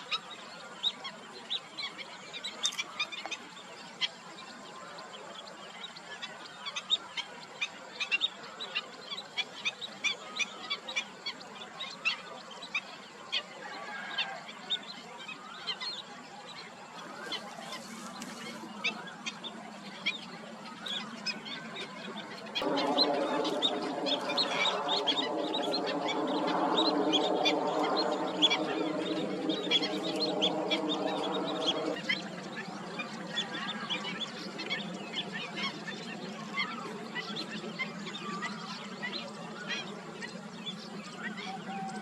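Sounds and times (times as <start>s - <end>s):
birds calling: 17.0s - 35.8s
steady multi-tone drone: 22.5s - 33.6s.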